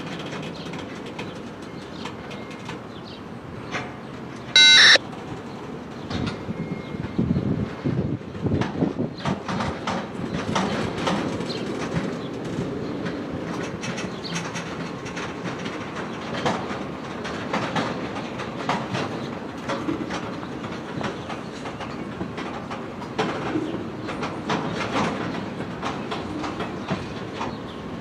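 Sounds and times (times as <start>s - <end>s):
train wheels clacking over rail joints: 0.0s - 2.9s, 8.4s - 27.9s.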